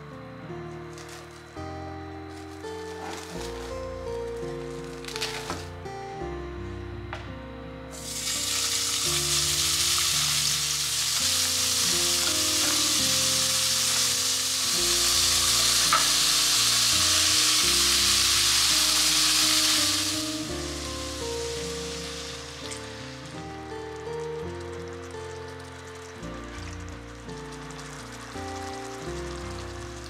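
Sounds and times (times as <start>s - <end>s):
pork sizzling in pot: 0.9s - 5.8s, 7.9s - 30.0s.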